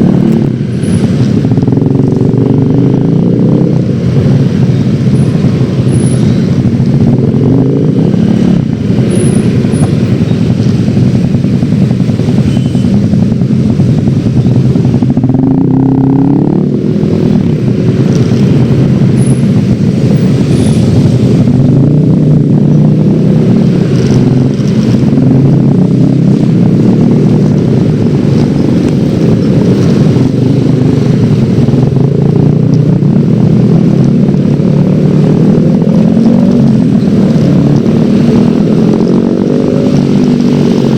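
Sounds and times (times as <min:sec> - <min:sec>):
scooter engine running: 0:00.0 - 0:15.8.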